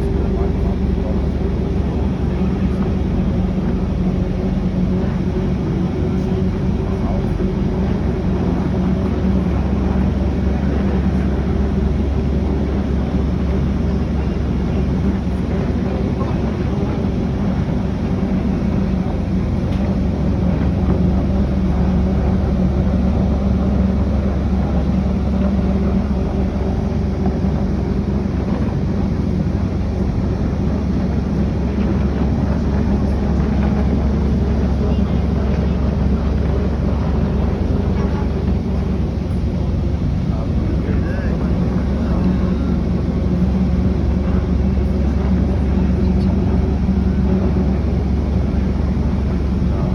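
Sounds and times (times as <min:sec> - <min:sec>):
boat engine drone: 0:00.0 - 0:49.9.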